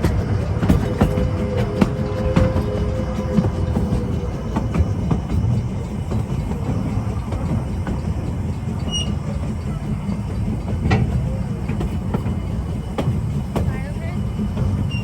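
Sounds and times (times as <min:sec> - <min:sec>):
train wheels rumbling on rail: 0:00.0 - 0:15.0
high squeak: 0:08.8 - 0:09.3.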